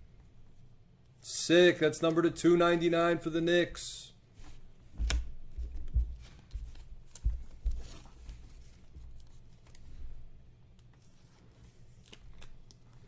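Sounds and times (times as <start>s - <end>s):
soft thumps: 4.9s - 8.4s.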